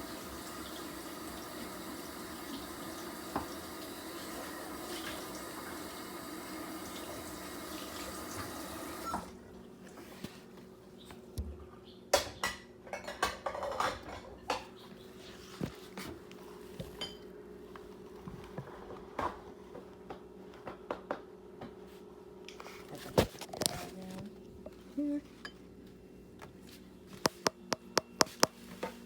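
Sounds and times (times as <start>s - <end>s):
kitchen tap running: 0.0s - 9.4s
dishes clinking and knocking: 12.2s - 14.7s.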